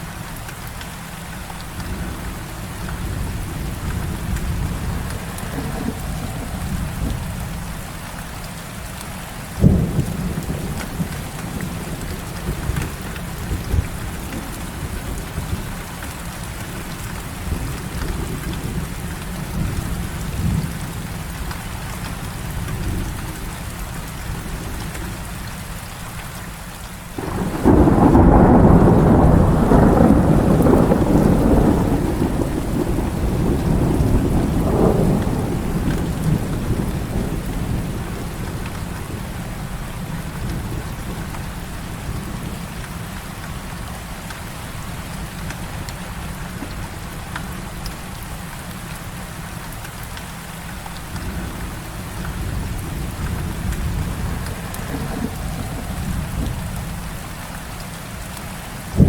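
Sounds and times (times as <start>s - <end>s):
heavy rain: 0.0s - 59.0s
rolling thunder rumble: 1.7s - 8.5s, 9.4s - 21.6s, 27.2s - 44.0s, 51.0s - 57.5s.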